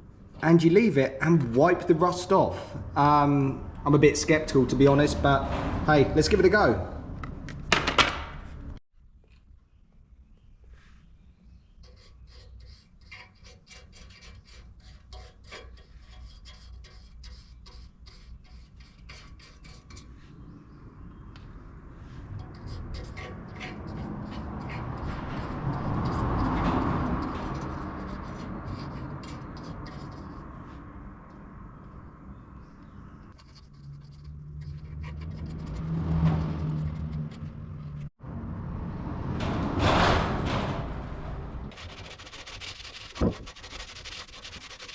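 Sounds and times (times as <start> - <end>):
brush scrubbing metal: 11.8 - 20.4, 22.1 - 30.9, 33.3 - 38.1, 41.7 - 44.9.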